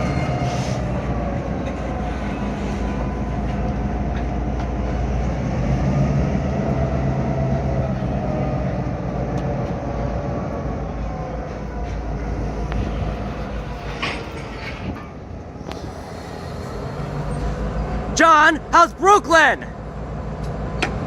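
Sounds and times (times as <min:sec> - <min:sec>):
diesel locomotive engine rumble: 0:00.0 - 0:21.0.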